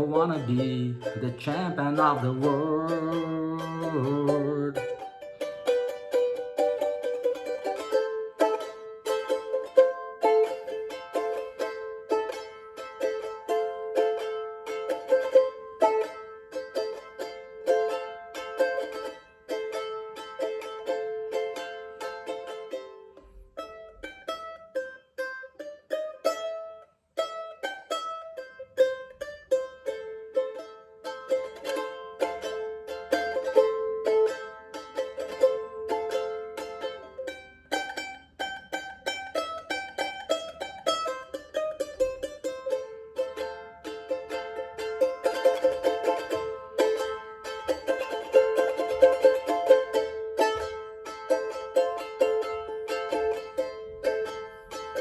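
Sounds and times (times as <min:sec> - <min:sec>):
ukulele strumming: 0:00.0 - 0:55.0.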